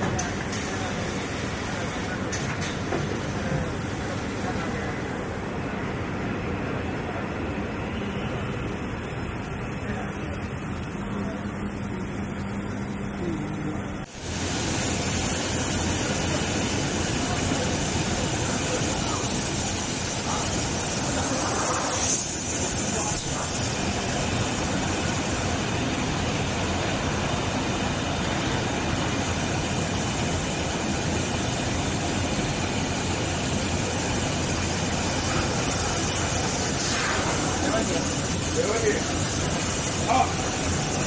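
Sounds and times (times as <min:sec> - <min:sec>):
industrial machinery rushing hiss: 0:00.0 - 0:05.6, 0:14.1 - 0:41.0.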